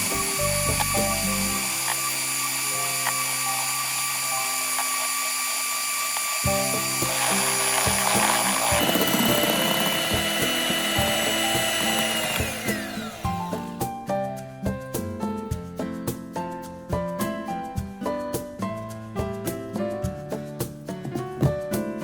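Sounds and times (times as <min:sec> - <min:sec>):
background music with held notes: 0:00.0 - 0:04.9, 0:06.4 - 0:22.0
small electric motor whirring: 0:00.0 - 0:13.7.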